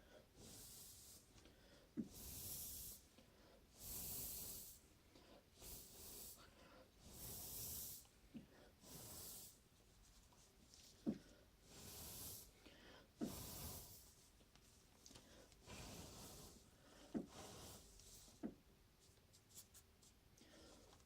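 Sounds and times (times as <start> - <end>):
bursts of hissing air: 2.1 - 3.1, 3.8 - 4.8, 11.6 - 12.6.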